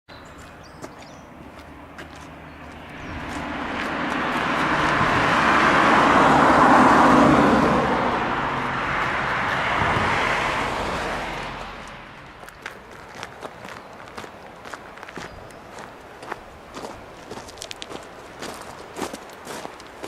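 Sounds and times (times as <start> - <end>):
car passing by: 1.6 - 15.0.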